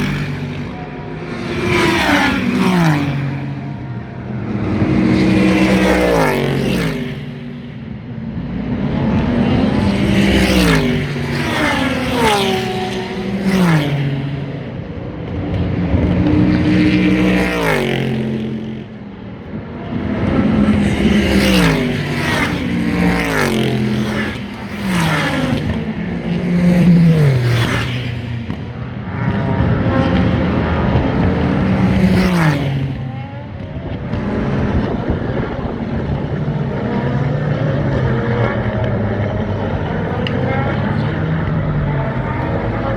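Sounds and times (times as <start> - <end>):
race cars passing by: 0.0 - 42.9.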